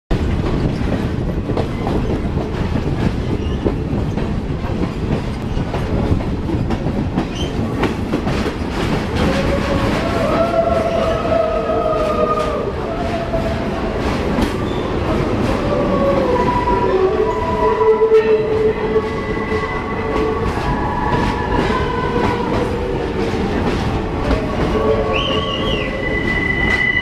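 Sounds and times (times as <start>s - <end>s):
train wheels rumbling and clattering: 0.1s - 27.0s
wheels squealing against rail: 3.2s - 3.9s, 7.3s - 7.6s, 14.6s - 15.0s, 24.4s - 27.0s.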